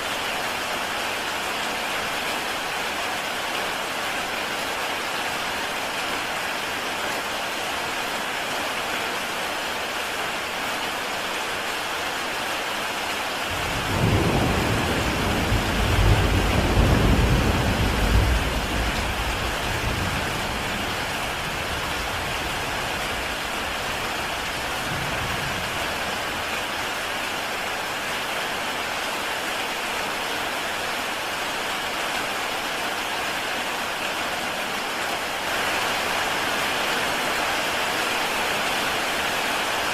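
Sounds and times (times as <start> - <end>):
heavy rain on a tile roof: 0.0 - 39.9
thunder rolling: 13.5 - 21.1.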